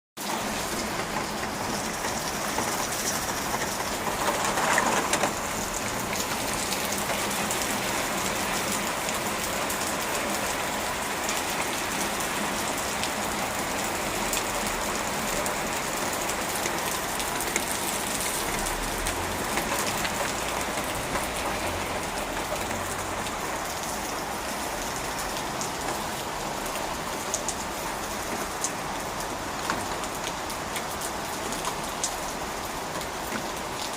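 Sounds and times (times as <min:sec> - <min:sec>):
heavy rain falling: 0:00.2 - 0:33.9.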